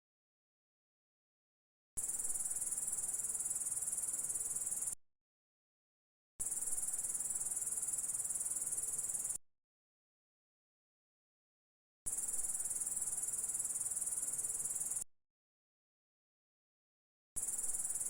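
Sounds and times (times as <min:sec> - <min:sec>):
high insect trill: 0:12.2 - 0:15.0.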